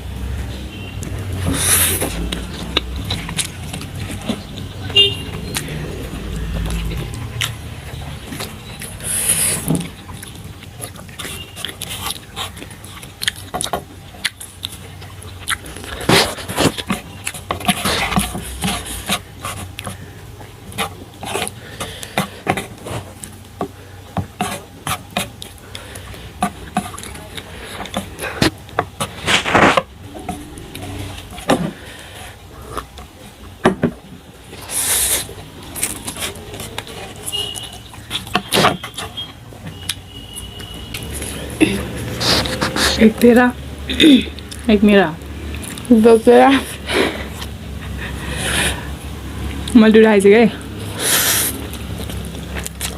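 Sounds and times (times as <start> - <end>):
chewing: 1.4 - 4.7, 5.3 - 33.4, 34.5 - 43.0, 44.3 - 45.9, 50.6 - 52.9
slurping noodles: 41.2 - 43.1, 50.8 - 52.9.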